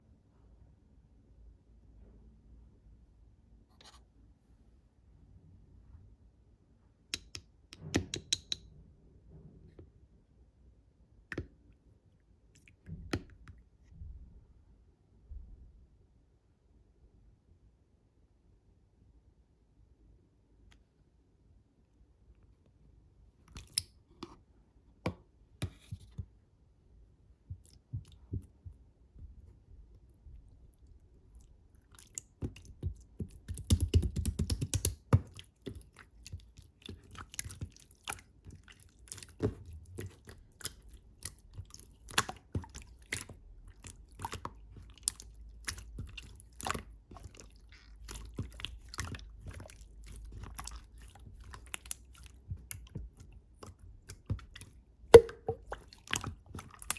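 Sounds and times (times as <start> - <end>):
sticky clicks of hand-pressed slime: 32.0 - 38.2.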